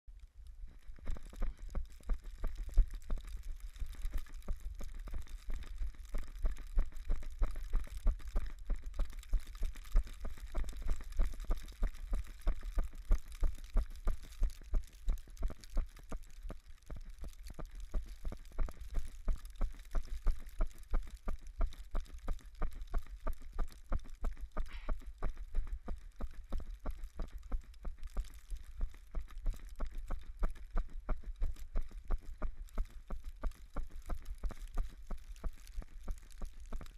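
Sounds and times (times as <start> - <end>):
running footsteps on snow: 0.6 - 36.9.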